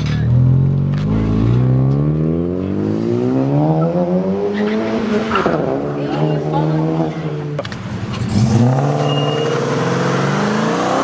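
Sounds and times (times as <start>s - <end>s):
car engine revving hard: 8.2s - 11.0s.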